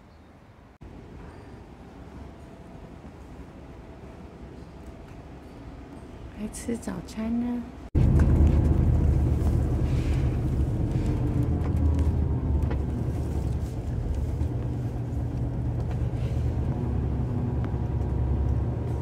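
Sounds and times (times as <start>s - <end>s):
engine and road rumble: 7.8s - 19.0s.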